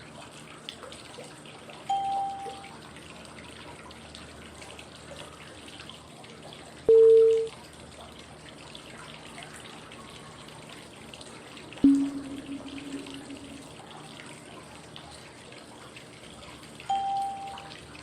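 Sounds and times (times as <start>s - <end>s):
flowing water: 0.0s - 18.0s
short cue tone: 1.9s - 2.7s, 6.9s - 7.5s, 11.8s - 13.8s, 16.9s - 17.7s.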